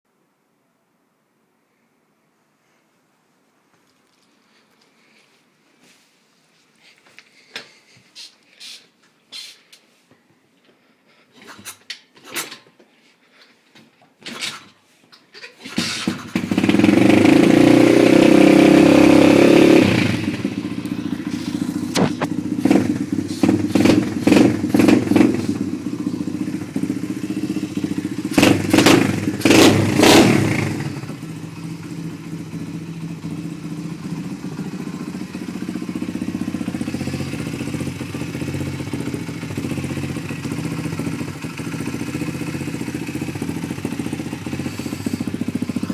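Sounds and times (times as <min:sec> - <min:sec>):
dirt bike engine revving and idling: 0:15.6 - 0:45.9.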